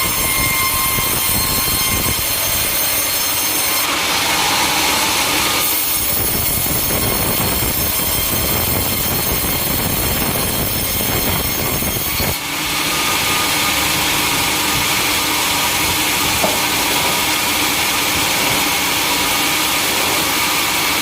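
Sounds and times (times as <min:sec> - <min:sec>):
saw cutting through wood: 0:00.0 - 0:21.0
sawmill machinery running: 0:00.0 - 0:21.0.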